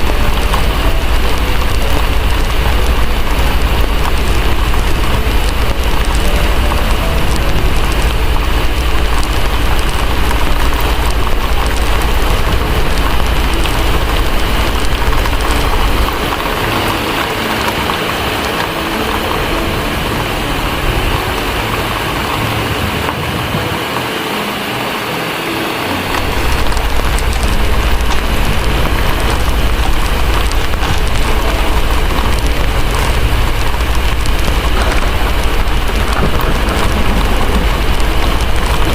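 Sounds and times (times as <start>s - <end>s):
deep low rumble: 0.0s - 24.0s, 26.0s - 38.9s
heavy rain: 0.0s - 38.9s
wood fire crackling: 0.0s - 38.9s.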